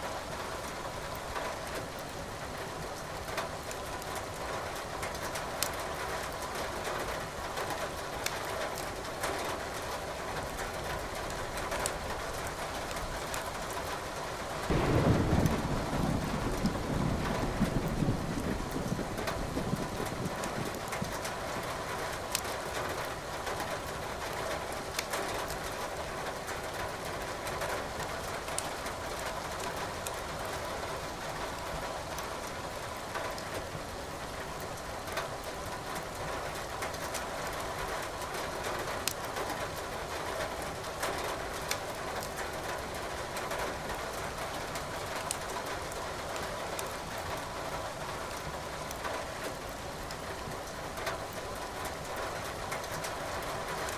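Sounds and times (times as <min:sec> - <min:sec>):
firewood crackling in fireplace: 0:00.7 - 0:17.9, 0:18.5 - 0:53.9
rain hissing: 0:14.2 - 0:53.9
thunder rolling: 0:14.7 - 0:21.1.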